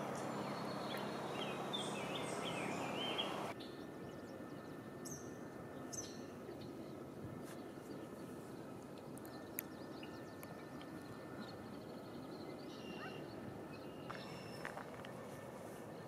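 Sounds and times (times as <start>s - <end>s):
songbird warbling: 0.0s - 3.6s
steady low hum: 0.0s - 16.0s.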